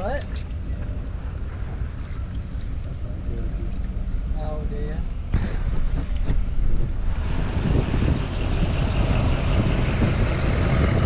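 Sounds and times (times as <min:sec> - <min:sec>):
road noise: 0:00.0 - 0:11.0
truck engine: 0:05.8 - 0:11.0.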